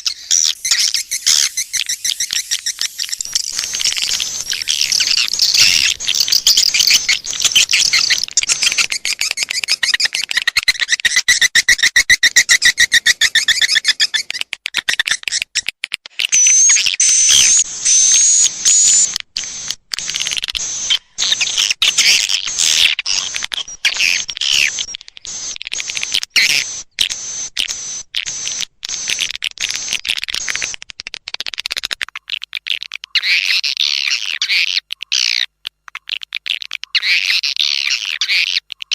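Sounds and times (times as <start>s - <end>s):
swiftlets chattering and twittering: 0.0s - 11.6s
thin high whistle: 0.5s - 5.8s.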